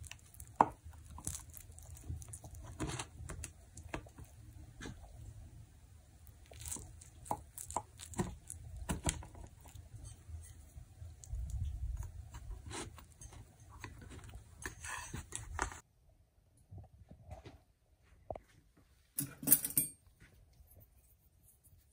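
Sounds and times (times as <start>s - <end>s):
cake crust crunching: 0.0s - 5.2s, 6.2s - 14.6s.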